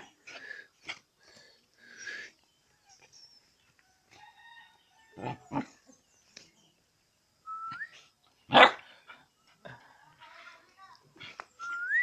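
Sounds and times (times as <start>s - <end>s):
dog barking: 8.5s - 8.9s.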